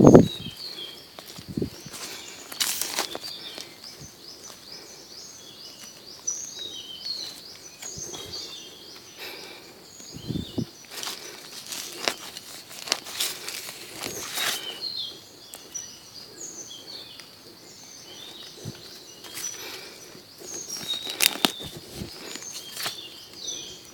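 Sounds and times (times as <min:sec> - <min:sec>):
rustling and crackling: 0:00.0 - 0:05.0, 0:10.0 - 0:15.9, 0:18.1 - 0:23.8
small birds chirping: 0:00.0 - 0:23.9.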